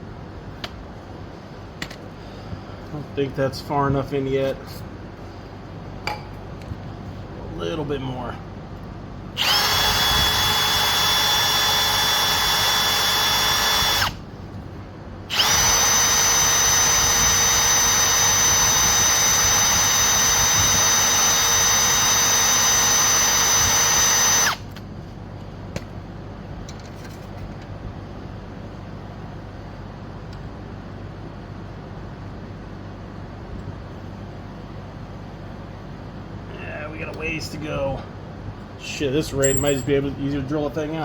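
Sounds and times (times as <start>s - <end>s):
electric drill boring into metal: 9.4s - 14.2s, 15.3s - 24.6s.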